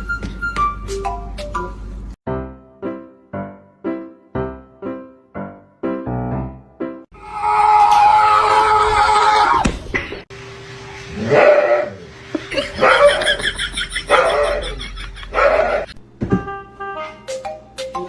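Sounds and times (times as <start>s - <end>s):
dog barking: 12.8s - 13.3s, 14.1s - 14.7s, 15.3s - 15.9s.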